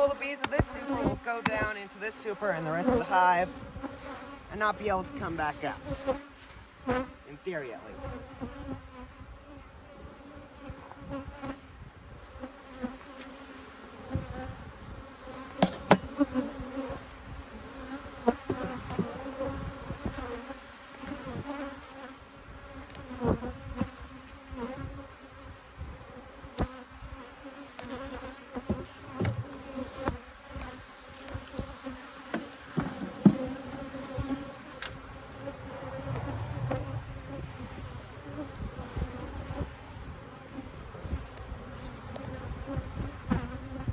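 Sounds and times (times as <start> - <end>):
bees buzzing: 0.0 - 11.7, 12.3 - 43.9
sharp knocks and clunks: 15.6 - 16.2, 28.7 - 29.6, 32.3 - 33.5.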